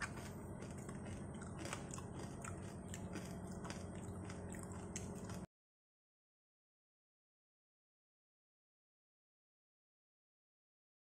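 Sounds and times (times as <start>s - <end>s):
person chewing crunchy pork crackling: 0.0s - 5.5s
steady low hum: 0.0s - 5.5s.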